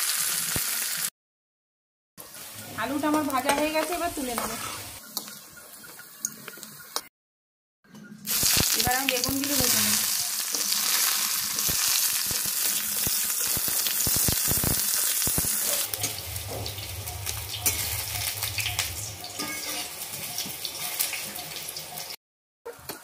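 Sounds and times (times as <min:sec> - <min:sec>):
vegetables sizzling in oil: 0:00.0 - 0:01.1, 0:02.2 - 0:05.8, 0:08.3 - 0:22.2.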